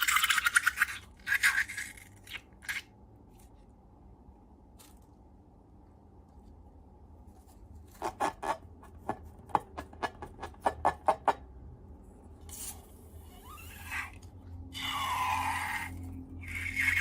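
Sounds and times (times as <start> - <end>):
squeak: 13.2 - 14.2, 14.8 - 17.0.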